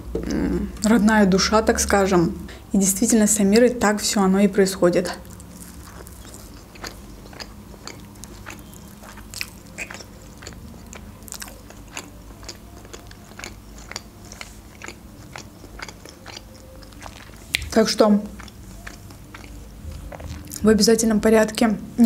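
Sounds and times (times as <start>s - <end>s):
low steady hum: 0.0s - 22.0s
person chewing with mouth clicks: 5.2s - 20.6s.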